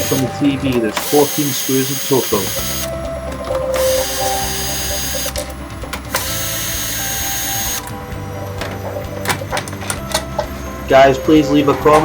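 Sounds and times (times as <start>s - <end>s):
electric screwdriver running: 0.0s - 8.3s.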